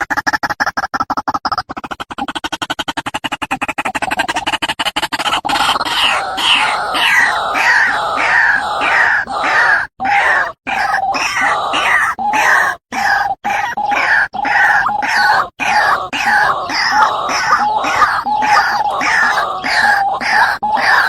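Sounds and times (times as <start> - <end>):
waterhen calling harshly: 5.5 - 21.0.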